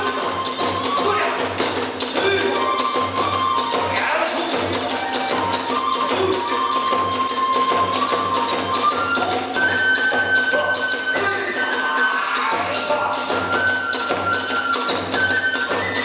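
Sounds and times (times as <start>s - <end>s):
big drum beat: 0.0s - 2.8s
bamboo flute melody: 0.0s - 16.0s.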